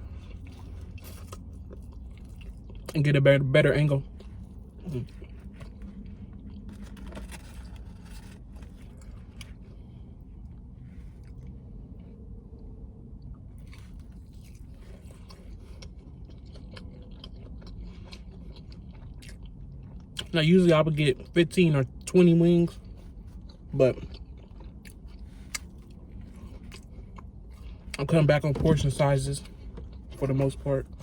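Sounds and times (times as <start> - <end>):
person chewing and biting food: 0.0 - 3.0, 4.1 - 12.0, 13.6 - 20.3, 22.7 - 31.0
low hum: 0.0 - 20.2.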